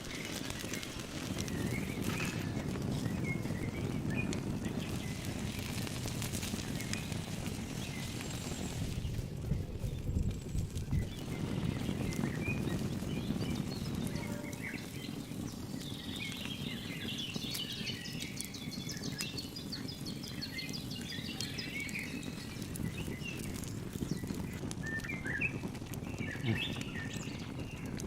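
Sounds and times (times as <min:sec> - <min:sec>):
birds chirping: 0:00.0 - 0:28.0
low outdoor rumble: 0:00.2 - 0:16.1.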